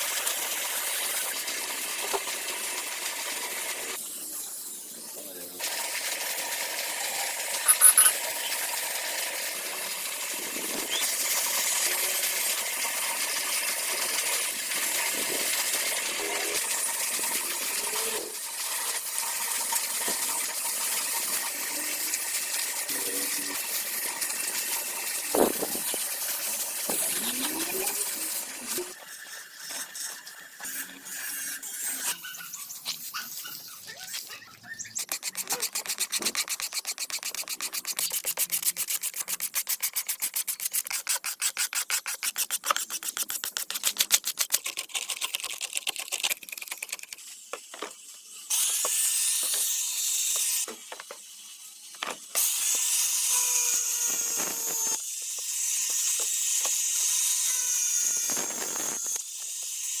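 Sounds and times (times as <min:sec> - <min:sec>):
small power tool hissing: 0:00.0 - 0:33.7, 0:34.9 - 0:45.9, 0:46.8 - 1:00.0
hand sanding strokes: 0:35.0 - 0:46.2.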